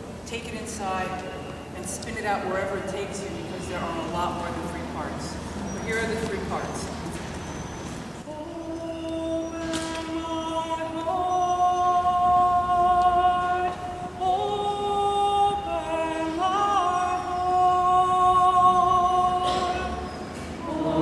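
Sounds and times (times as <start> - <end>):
woman singing unaccompanied: 8.2 - 21.0.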